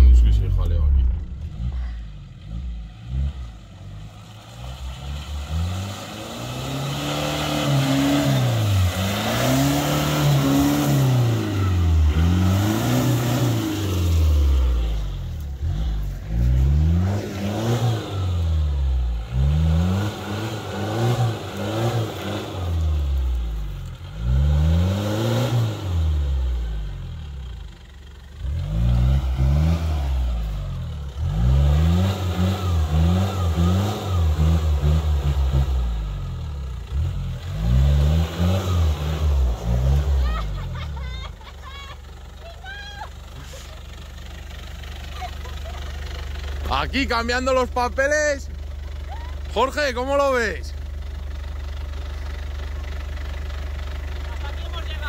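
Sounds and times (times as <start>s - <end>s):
engine revving: 0.0s - 27.7s, 28.3s - 42.0s.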